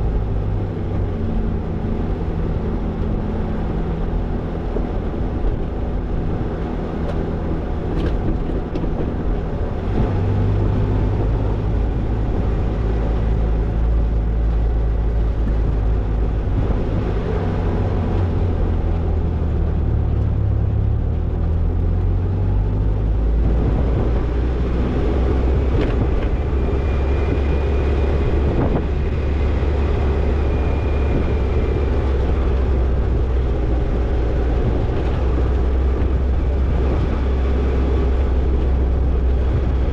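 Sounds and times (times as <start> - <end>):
car engine running: 0.0 - 39.9
road and drivetrain rumble: 0.0 - 39.9.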